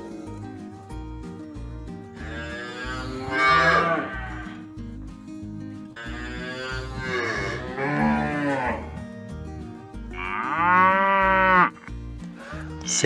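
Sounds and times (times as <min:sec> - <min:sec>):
background music: 0:00.0 - 0:13.0
cows mooing: 0:02.2 - 0:04.7, 0:06.0 - 0:09.0, 0:10.1 - 0:11.9.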